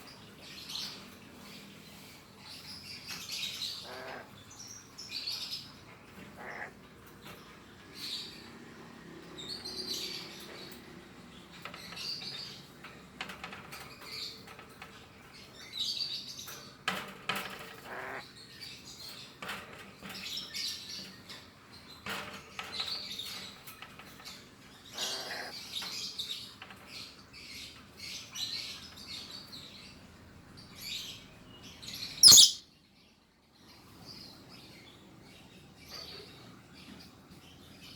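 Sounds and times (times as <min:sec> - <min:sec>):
parrot raspy calls: 0:03.8 - 0:04.3, 0:06.3 - 0:06.8, 0:24.9 - 0:25.6, 0:32.2 - 0:32.6
parrot chirping: 0:32.2 - 0:32.6.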